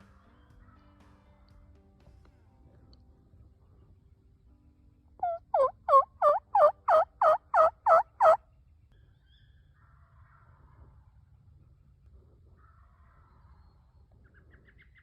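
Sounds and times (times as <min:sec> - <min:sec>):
turkey yelps: 0:05.2 - 0:08.4.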